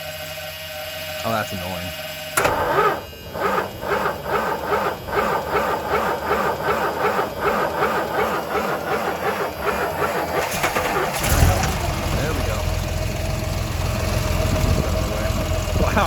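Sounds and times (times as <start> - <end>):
starter cranking engine: 2.0 - 16.0.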